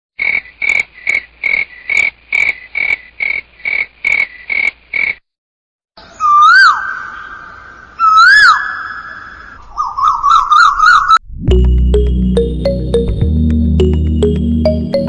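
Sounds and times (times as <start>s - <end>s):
croaking calls: 6.1s - 11.2s.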